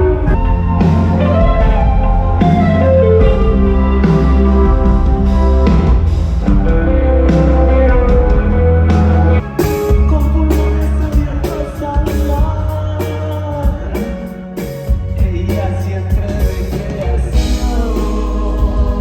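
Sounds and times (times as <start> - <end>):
rock band playing: 0.0 - 19.0
person singing: 7.4 - 19.0.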